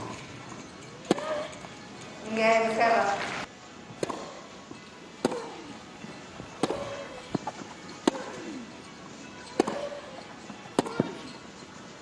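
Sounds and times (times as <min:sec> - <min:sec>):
tennis ball bouncing: 0:00.0 - 0:01.8, 0:03.9 - 0:04.5, 0:05.2 - 0:05.8, 0:06.4 - 0:08.6, 0:09.4 - 0:11.4
racket hitting tennis ball: 0:01.0 - 0:01.7, 0:04.0 - 0:04.5, 0:05.2 - 0:05.7, 0:06.4 - 0:08.6, 0:09.5 - 0:11.3.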